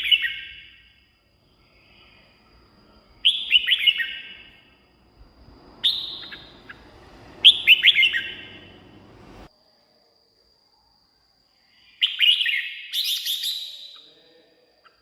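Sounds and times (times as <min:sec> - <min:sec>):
bird singing whistled notes: 0:00.0 - 0:09.5, 0:11.8 - 0:14.1.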